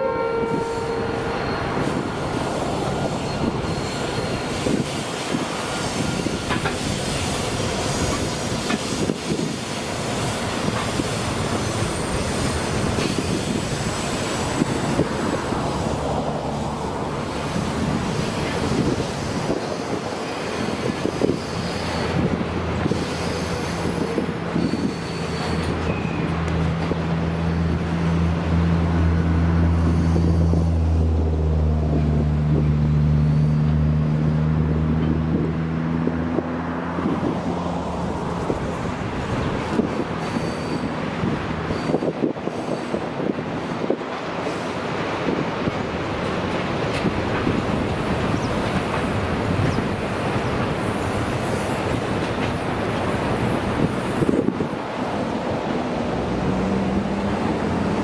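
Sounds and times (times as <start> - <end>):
high flange squeals: 0.0 - 9.0, 17.3 - 26.4, 39.9 - 41.0
wheel-and-rail rumble: 0.0 - 58.0
low engine hum: 26.7 - 39.1.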